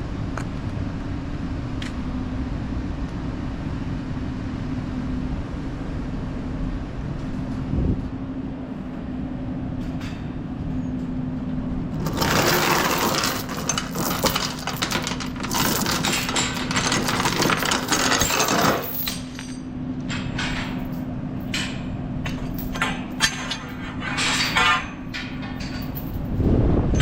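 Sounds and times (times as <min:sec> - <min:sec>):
metal chains rattling: 0:12.0 - 0:27.0.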